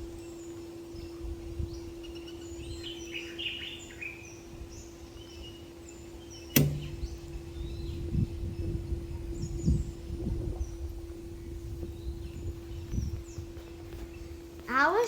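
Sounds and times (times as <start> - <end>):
birds chirping: 0.0 - 15.0
low hum: 5.9 - 14.6
sharp knock: 6.6 - 7.9.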